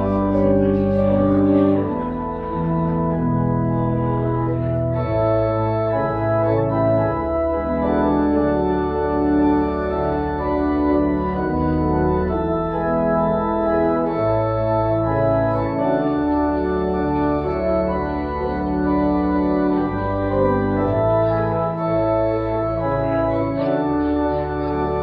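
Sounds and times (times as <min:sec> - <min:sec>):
organ playing chords: 0:00.0 - 0:25.0.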